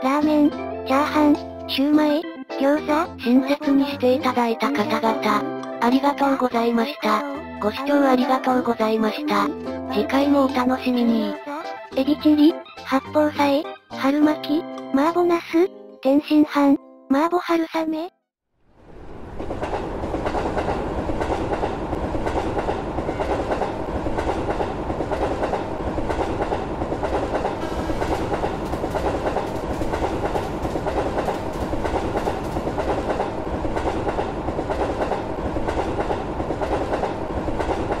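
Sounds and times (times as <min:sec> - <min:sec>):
train wheels rumbling on rails: 0:18.8 - 0:38.0.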